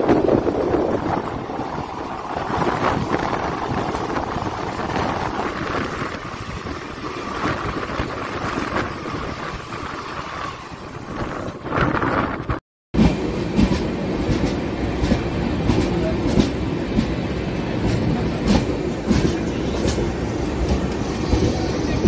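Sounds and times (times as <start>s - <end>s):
wind on microphone: 0.0s - 12.6s
rolling train noise: 0.0s - 22.0s
train passing alongside: 0.0s - 22.0s.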